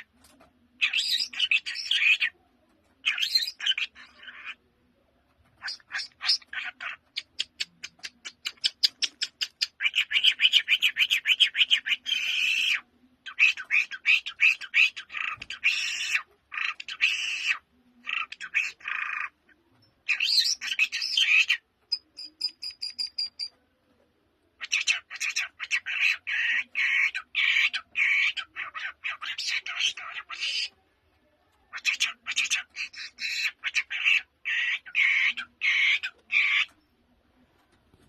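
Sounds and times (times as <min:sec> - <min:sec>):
lark singing trills: 0:20.1 - 0:23.5.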